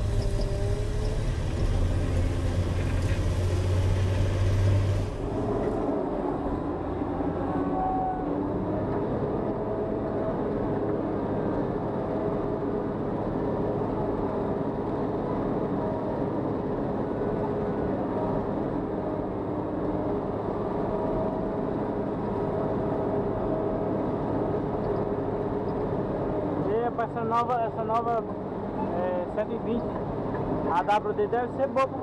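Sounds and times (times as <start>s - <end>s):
diesel engine humming: 0.0s - 10.7s.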